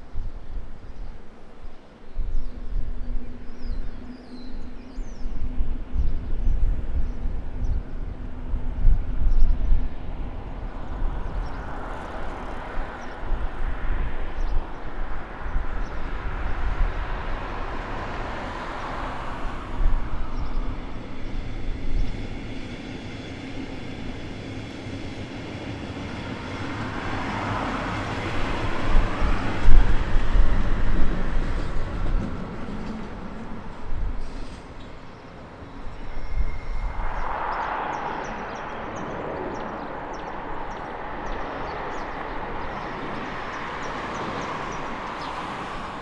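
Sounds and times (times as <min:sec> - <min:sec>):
loud passing train: 0:00.0 - 0:46.0
rushing noise of passing cars: 0:00.0 - 0:46.0
train wheels rumbling on rail: 0:05.4 - 0:38.4.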